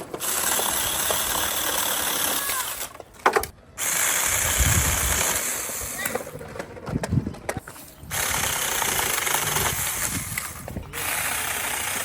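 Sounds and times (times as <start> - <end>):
electric chainsaw whirring: 0.0 - 2.9, 3.8 - 6.0, 8.1 - 12.0.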